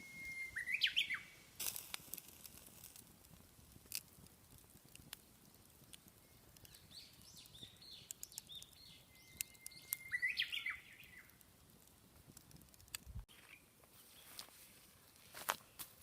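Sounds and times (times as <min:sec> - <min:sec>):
songbird chirping and singing: 0:00.3 - 0:01.3, 0:06.2 - 0:11.3.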